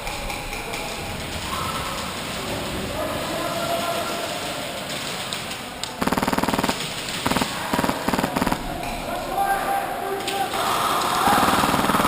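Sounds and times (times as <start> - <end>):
airsoft gun automatic bursts: 6.0 - 8.6, 11.3 - 12.0.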